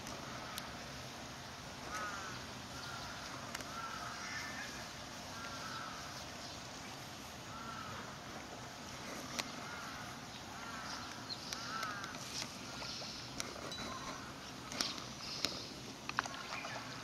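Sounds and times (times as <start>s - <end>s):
bird calling: 1.8s - 17.0s
faint clicks: 2.9s - 4.0s, 9.0s - 9.8s, 10.6s - 16.8s.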